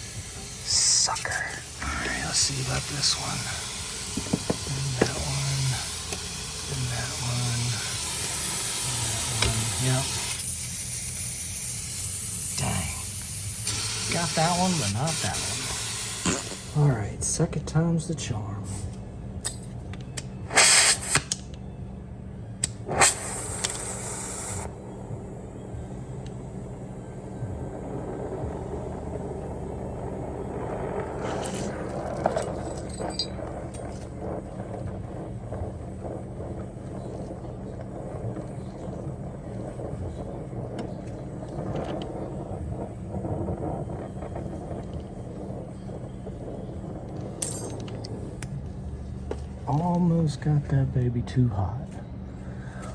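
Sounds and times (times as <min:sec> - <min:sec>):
compressed gas hissing: 0:00.0 - 0:16.9, 0:18.6 - 0:19.1, 0:20.3 - 0:21.5, 0:22.6 - 0:49.9
torch flame rushing: 0:00.0 - 0:16.9, 0:20.3 - 0:21.5, 0:22.6 - 0:50.4
low steady hum: 0:00.0 - 0:52.9
sharp click: 0:20.0 - 0:21.6.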